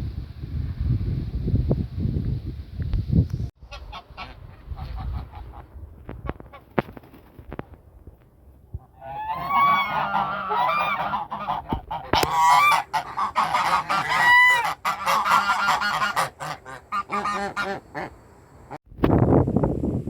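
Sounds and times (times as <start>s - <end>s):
birds calling: 8.8s - 18.8s.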